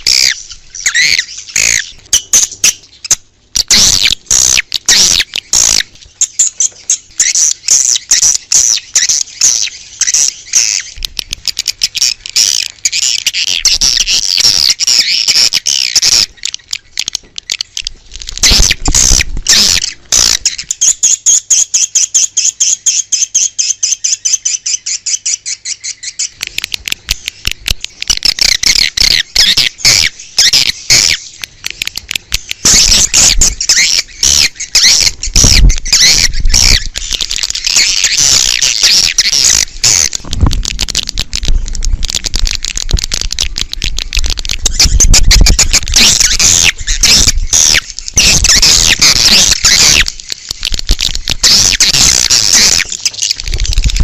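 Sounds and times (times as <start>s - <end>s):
dense twittering of birds: 0.0s - 54.0s
swiftlet calls: 32.4s - 54.0s.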